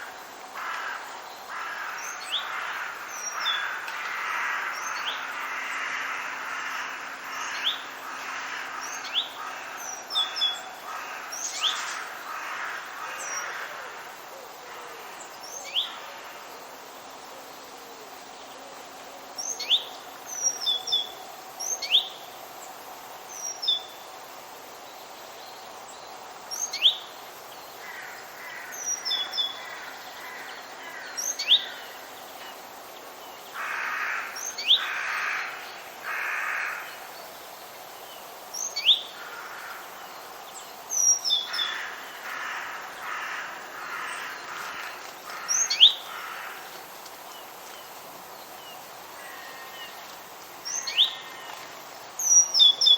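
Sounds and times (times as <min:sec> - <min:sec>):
steady background hiss: 0:00.0 - 0:52.9
harsh caw-like bird calls: 0:00.6 - 0:14.2, 0:27.8 - 0:32.1, 0:33.5 - 0:37.2, 0:39.1 - 0:40.0, 0:41.3 - 0:46.8, 0:49.2 - 0:49.9.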